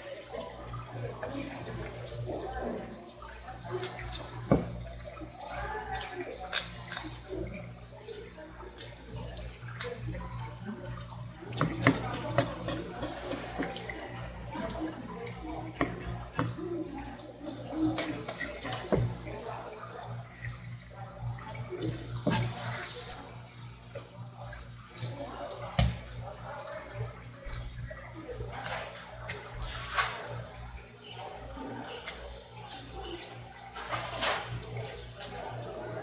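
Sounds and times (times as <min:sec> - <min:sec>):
knocks and clatter in sink: 0:04.4 - 0:04.9, 0:11.4 - 0:14.8, 0:17.8 - 0:19.4
tap running into sink: 0:04.4 - 0:04.9, 0:17.9 - 0:19.4.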